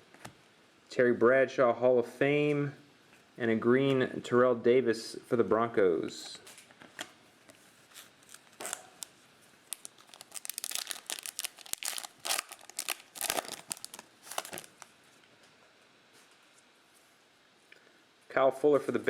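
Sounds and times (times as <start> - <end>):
plastic wrapper crinkling and tearing: 7.9 - 14.9.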